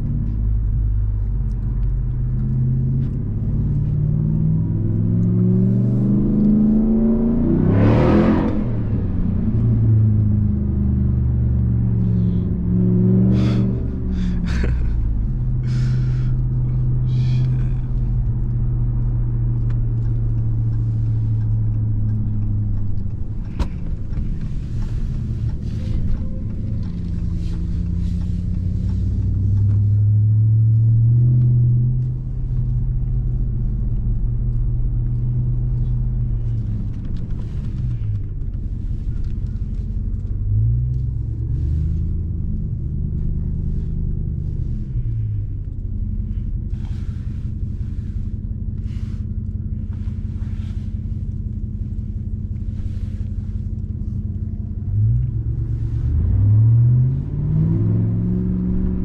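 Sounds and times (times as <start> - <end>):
pickup truck engine running: 13.4 - 30.9.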